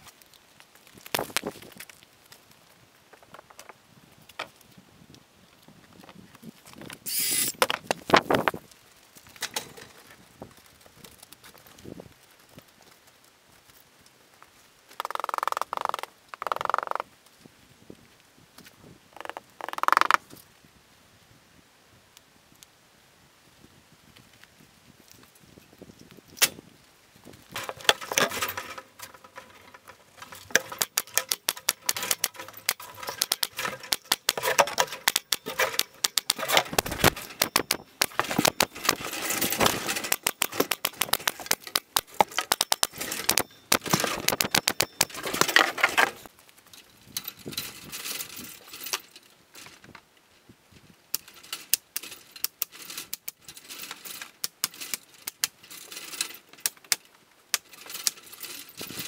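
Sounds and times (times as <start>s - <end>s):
power fastening tool clicking: 7.1s - 7.6s.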